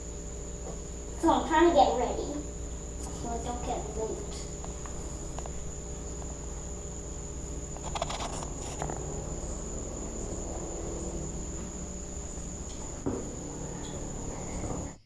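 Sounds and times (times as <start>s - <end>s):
insects singing: 0.0s - 15.0s
brief rustle: 7.8s - 9.0s.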